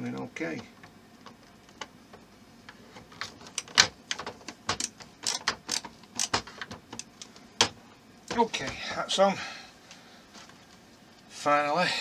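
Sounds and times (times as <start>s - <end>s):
plastic parts clicking: 3.0s - 7.8s.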